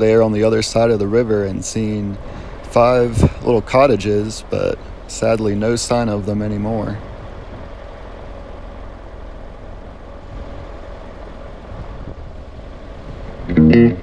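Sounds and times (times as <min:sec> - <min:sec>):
vehicle driving on road: 0:00.0 - 0:13.7
guitar music: 0:13.4 - 0:14.0.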